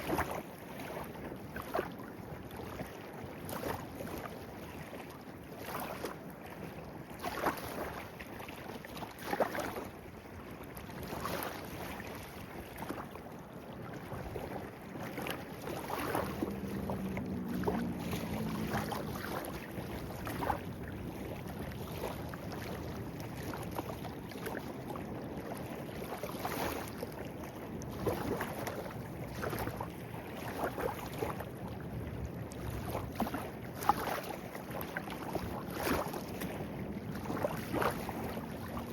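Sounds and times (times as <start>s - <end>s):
small splashes and gurgles: 0.0s - 38.9s
stream burbling: 10.8s - 38.9s.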